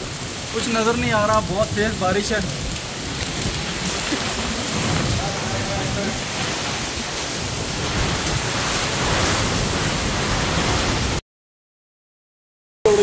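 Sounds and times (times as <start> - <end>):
heavy rain pouring: 0.0 - 11.2
wind on microphone: 1.1 - 11.2.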